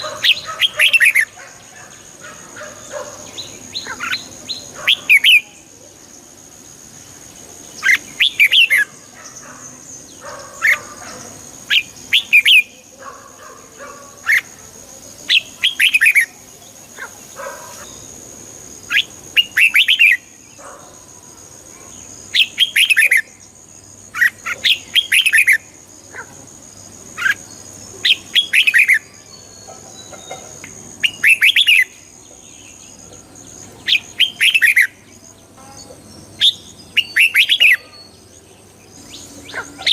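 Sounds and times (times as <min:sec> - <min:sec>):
bird singing bubbling phrases: 0:11.7 - 0:13.2, 0:36.4 - 0:38.1.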